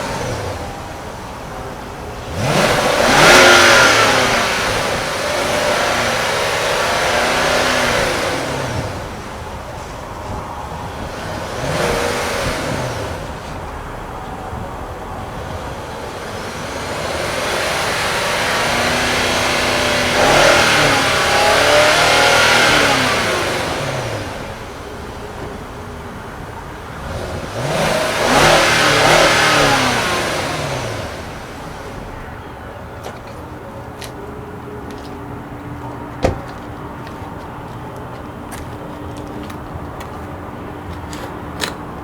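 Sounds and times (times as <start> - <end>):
car engine revving: 0.0 - 32.5.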